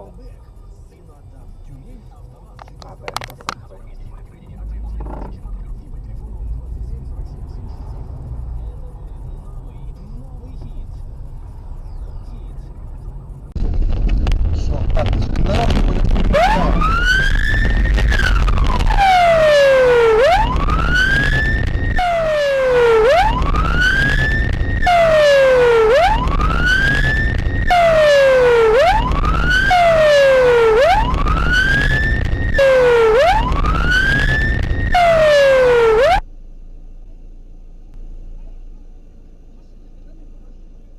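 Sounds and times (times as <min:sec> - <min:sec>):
low rumble of vehicle: 0:00.0 - 0:40.9
emergency vehicle siren wailing: 0:15.7 - 0:36.2.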